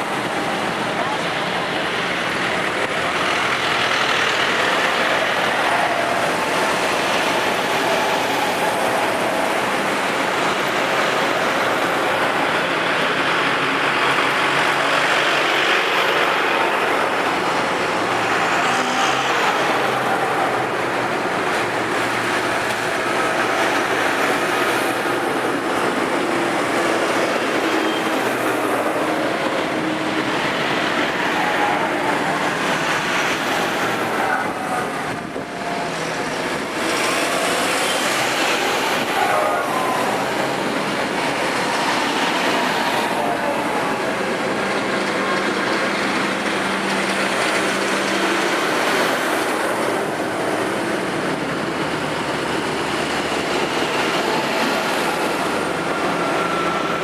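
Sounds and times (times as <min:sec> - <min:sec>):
tractors driving past: 0:00.0 - 0:57.0.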